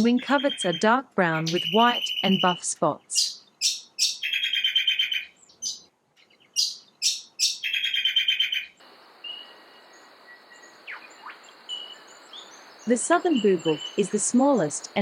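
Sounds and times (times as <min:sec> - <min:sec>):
bird calling and trilling: 0:00.0 - 0:09.6, 0:10.4 - 0:15.0
faint chirps: 0:08.8 - 0:15.0
steady high hiss: 0:08.8 - 0:15.0.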